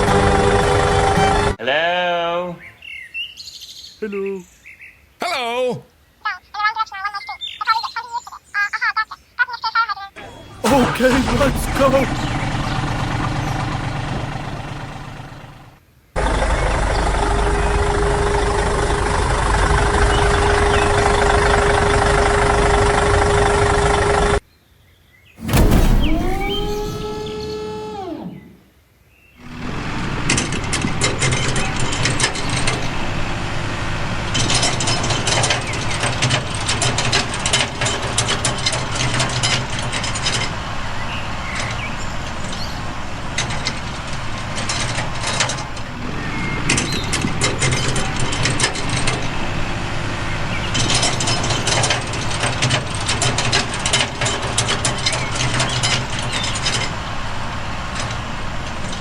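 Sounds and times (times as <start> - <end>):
mini tractor rattling: 10.6 - 24.4, 29.8 - 59.0.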